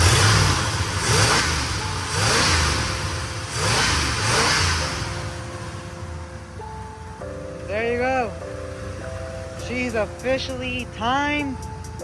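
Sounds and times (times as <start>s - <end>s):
truck engine revving: 0.0s - 7.6s
steady musical tone: 0.0s - 12.0s.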